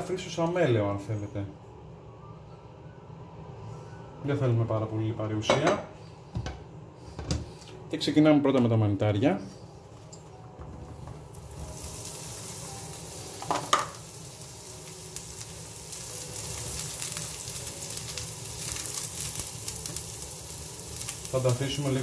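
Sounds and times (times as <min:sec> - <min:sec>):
mushrooms sizzling in oil: 0:11.1 - 0:22.0.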